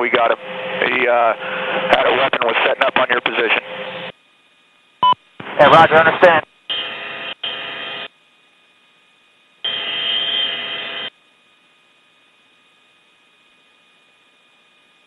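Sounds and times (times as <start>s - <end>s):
radio static burst: 0.0s - 4.1s, 5.0s - 8.1s.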